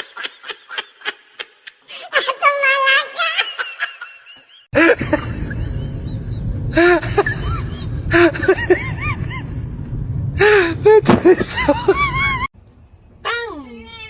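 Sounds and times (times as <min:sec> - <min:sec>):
steady low rumble: 0:04.8 - 0:13.3.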